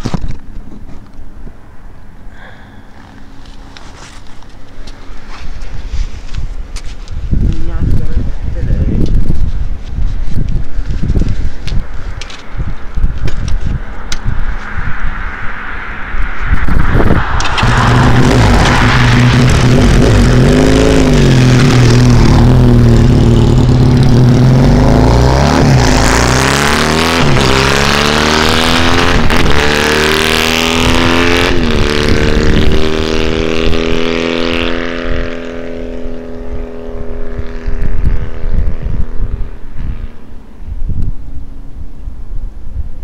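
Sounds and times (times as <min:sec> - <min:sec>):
loud motorcycle accelerating: 0:14.2 - 0:40.4.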